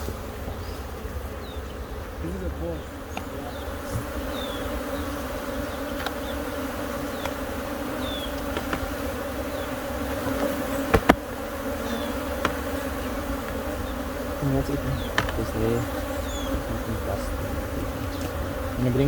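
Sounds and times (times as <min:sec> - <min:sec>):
honeybees buzzing: 0:00.0 - 0:19.0
sharp clicks: 0:08.3 - 0:09.0, 0:15.0 - 0:15.5.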